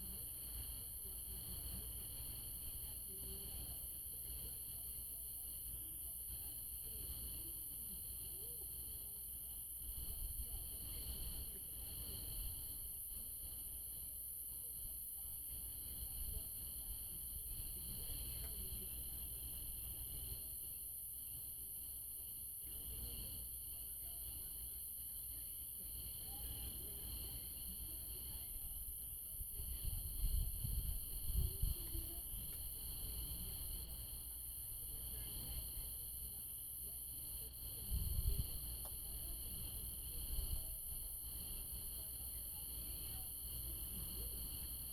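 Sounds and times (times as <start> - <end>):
low rumbles on microphone: 29.4 - 32.5.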